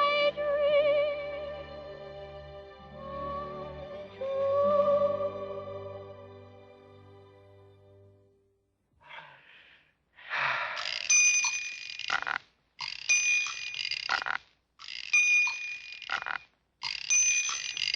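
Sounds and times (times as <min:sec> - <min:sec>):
faint rattle: 0:10.4 - 0:17.9
bell ringing: 0:10.8 - 0:12.2, 0:12.8 - 0:14.1, 0:14.8 - 0:17.9.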